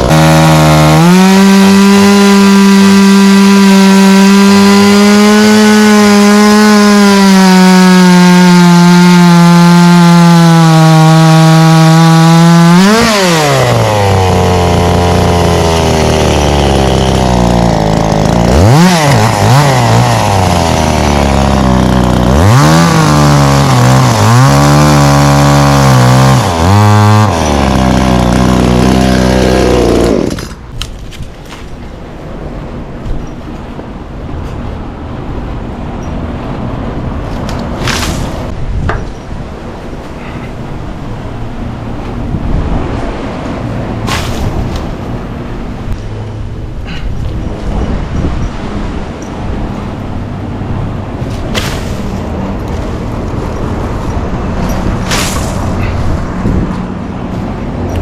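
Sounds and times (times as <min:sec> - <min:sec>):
chainsaw cutting: 0:00.0 - 0:30.7.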